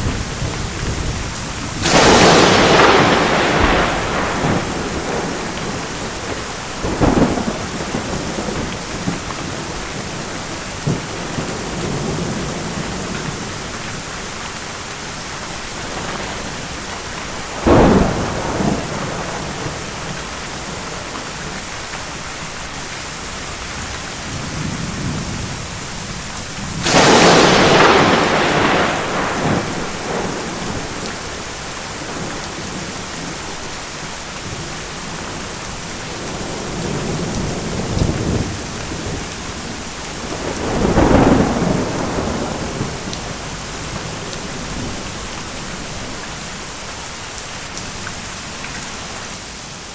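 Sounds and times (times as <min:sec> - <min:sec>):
thunder cracks: 0:00.0 - 0:13.6, 0:15.8 - 0:20.4, 0:26.7 - 0:33.3, 0:36.1 - 0:45.2
steady rain: 0:00.0 - 0:49.9.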